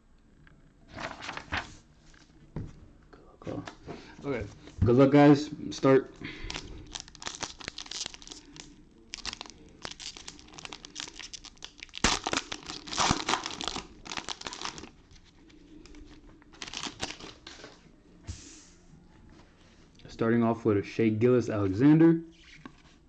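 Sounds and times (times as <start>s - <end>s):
plastic wrapping crinkling and tearing: 6.3s - 17.8s.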